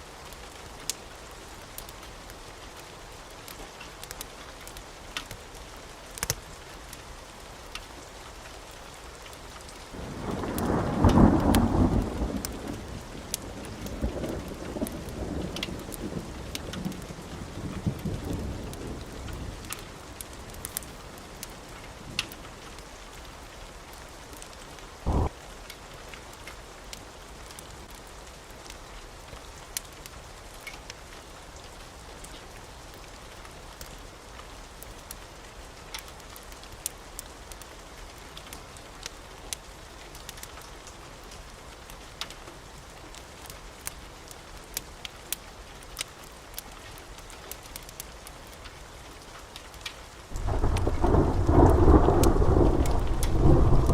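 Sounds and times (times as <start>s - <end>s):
wood fire crackling: 0.1s - 53.9s
loud low thud: 25.1s - 25.3s
low rumble: 25.1s - 25.3s.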